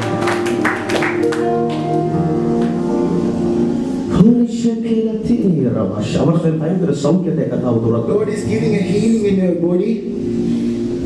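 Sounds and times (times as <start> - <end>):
worship music with held chords: 0.0 - 6.0, 7.6 - 11.0
man's voice: 4.1 - 10.2.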